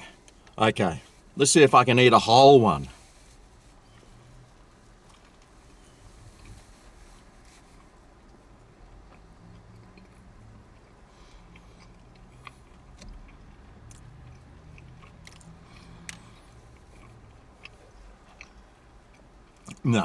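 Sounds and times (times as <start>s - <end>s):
man chewing food: 3.1s - 19.9s
mouth clicks and crunches: 7.8s - 20.0s.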